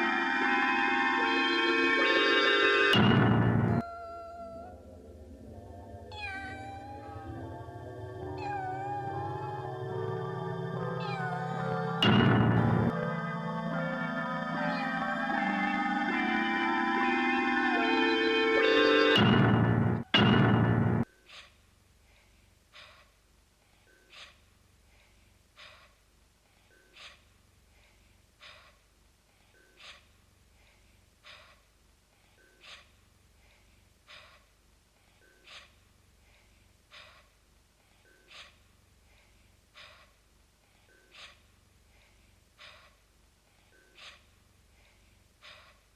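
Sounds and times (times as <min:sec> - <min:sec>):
music: 0:00.0 - 0:03.8, 0:04.5 - 0:21.0
cartoon cat breathing: 0:06.1 - 0:12.0, 0:21.2 - 0:23.1, 0:23.9 - 0:26.0, 0:26.7 - 0:28.8, 0:30.6 - 0:31.6, 0:32.4 - 0:34.5, 0:38.1 - 0:40.2, 0:40.9 - 0:43.0, 0:44.8 - 0:45.9.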